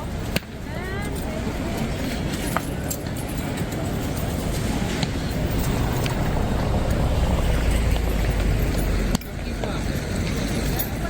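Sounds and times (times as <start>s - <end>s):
street ambience: 0.0s - 11.0s
low rumble: 5.1s - 10.5s.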